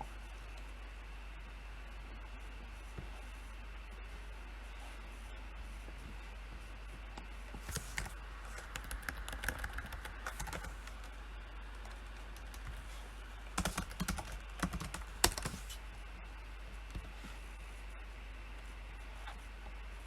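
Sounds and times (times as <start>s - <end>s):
typing on a keyboard: 7.7s - 11.2s, 13.6s - 15.8s.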